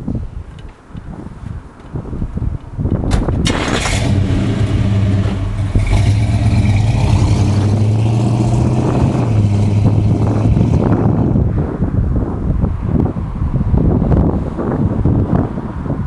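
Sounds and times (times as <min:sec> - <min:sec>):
car engine starting and running: 0:03.1 - 0:11.5.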